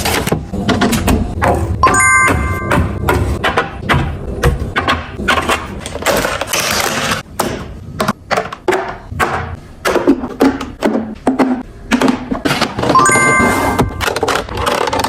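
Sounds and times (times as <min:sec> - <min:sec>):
containers clicking and clattering: 0:10.0 - 0:15.0.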